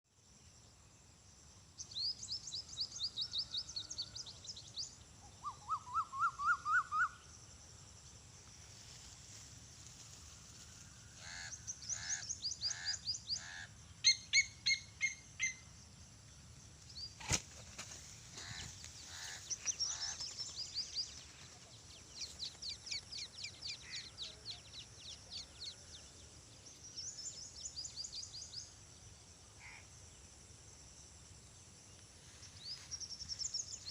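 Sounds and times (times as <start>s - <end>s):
faint high hiss: 0.1s - 33.9s
birds chirping: 9.8s - 28.8s.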